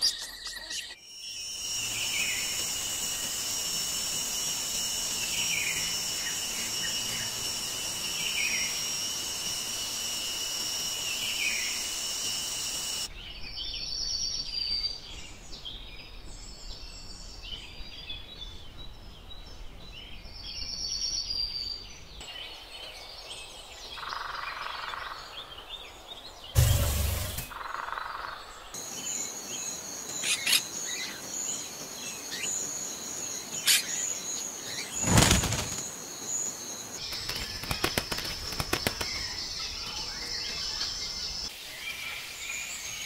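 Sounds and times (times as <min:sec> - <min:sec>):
bird chirps and trills: 0:00.0 - 0:18.4, 0:22.2 - 0:43.0
high-pitched drone: 0:01.5 - 0:13.1
bird falling call: 0:34.8 - 0:36.0.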